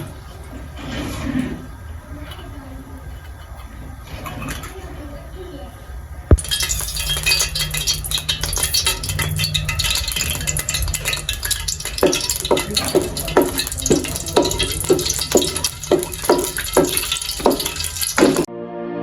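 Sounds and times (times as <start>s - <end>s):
metal spoon stirring in a pot: 6.3s - 18.5s.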